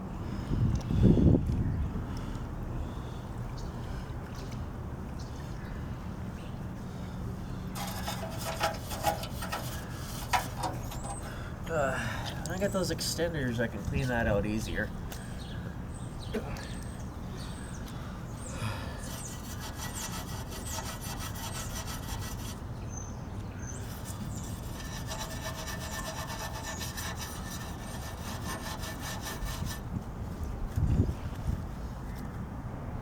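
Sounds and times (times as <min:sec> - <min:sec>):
scrubbing on metal frame: 0:07.7 - 0:14.4, 0:19.1 - 0:22.6, 0:23.8 - 0:29.8.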